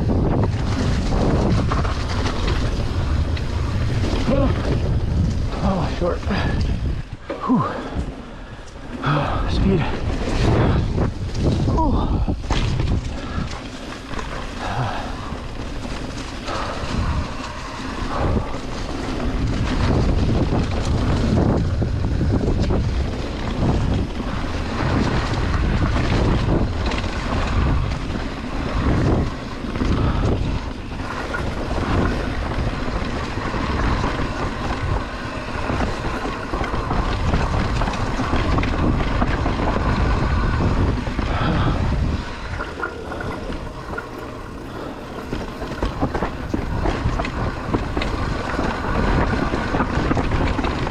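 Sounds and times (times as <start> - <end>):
mountain bike rattling on trail: 0.0 - 50.9
wind buffeting microphone: 0.0 - 50.9
bike knocking over bumps: 12.4 - 14.5.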